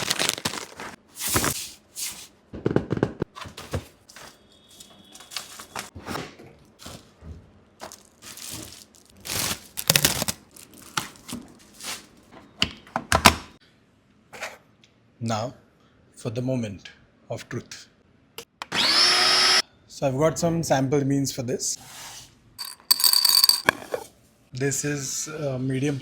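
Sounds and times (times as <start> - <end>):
cardboard and plastic tearing: 0.0 - 1.7, 5.2 - 5.9, 7.8 - 12.2.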